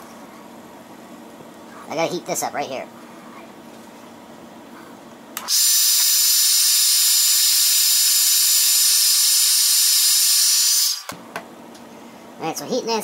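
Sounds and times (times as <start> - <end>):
hot-air blower running: 3.0 - 12.4.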